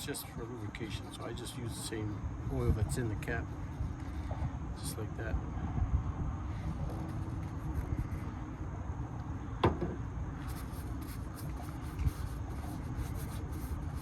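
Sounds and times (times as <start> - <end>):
low background rumble: 0.0 - 14.0
faint knock: 9.6 - 10.0.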